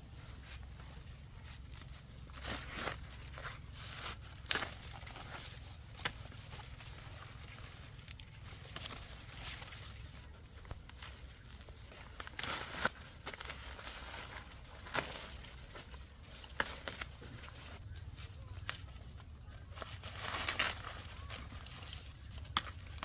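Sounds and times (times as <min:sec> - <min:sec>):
dry leaves rustling and crackling: 0:00.2 - 0:23.0
snapping and tearing: 0:19.9 - 0:23.0.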